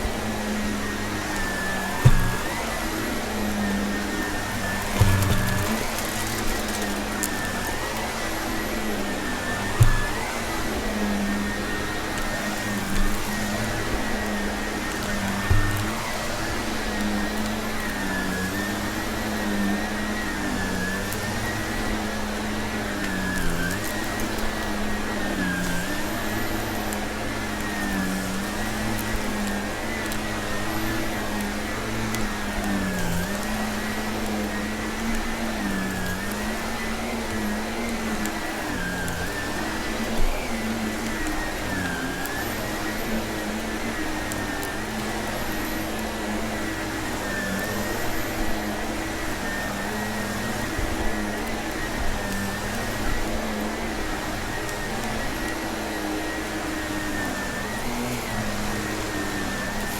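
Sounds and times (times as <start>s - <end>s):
vacuum cleaner running: 0.0s - 59.9s
debris crackling in vacuum: 1.3s - 19.5s.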